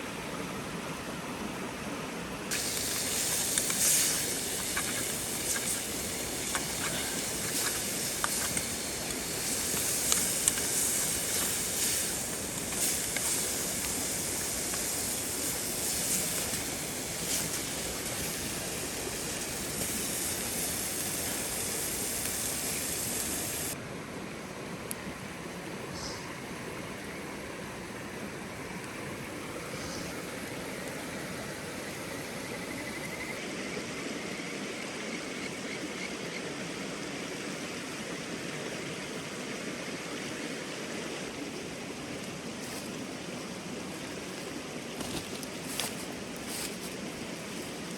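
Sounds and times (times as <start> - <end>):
stream rushing: 0.0 - 47.9
campfire crackling and popping: 2.5 - 23.8.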